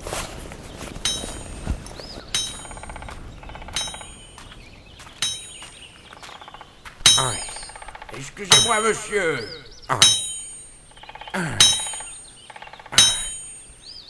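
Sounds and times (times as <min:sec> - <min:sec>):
hammer striking metal: 0:01.0 - 0:01.7, 0:02.4 - 0:04.4, 0:05.2 - 0:05.8, 0:07.0 - 0:13.8.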